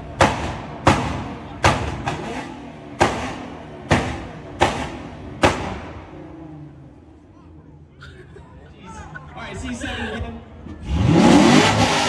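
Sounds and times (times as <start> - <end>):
car exhaust blasts: 0.0 - 7.2, 10.7 - 12.0.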